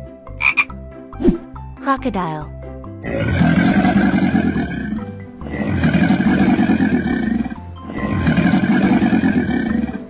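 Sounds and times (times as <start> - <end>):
background music: 0.0 - 10.0
deep rasping animal growls: 3.0 - 10.0.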